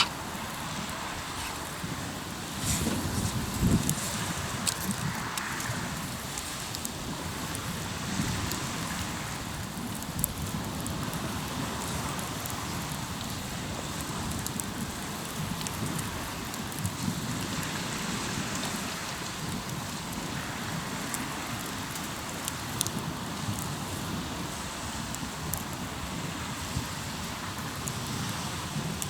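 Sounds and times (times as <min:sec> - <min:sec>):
campfire crackling and popping: 0:00.0 - 0:29.0
waves breaking on shore: 0:00.0 - 0:29.0.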